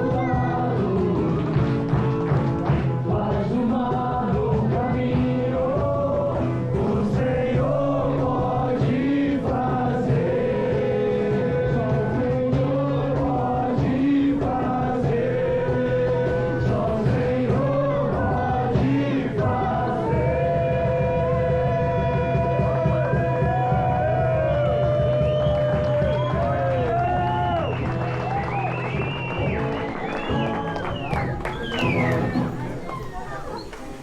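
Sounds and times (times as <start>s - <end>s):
group of voices singing: 0.0s - 27.1s.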